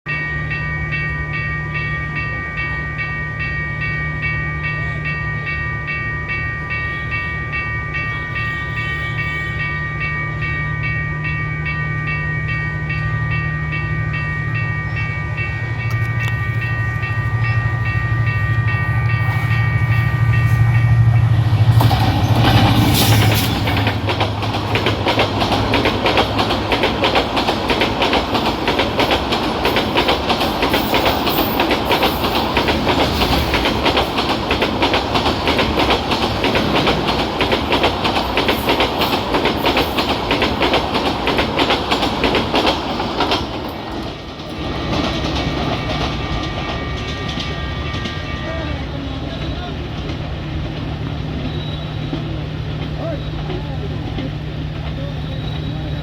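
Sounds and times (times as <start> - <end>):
locomotive engine rumble and whine: 0.3 - 38.3, 43.6 - 56.0
train wheels clickety-clack: 13.8 - 56.0.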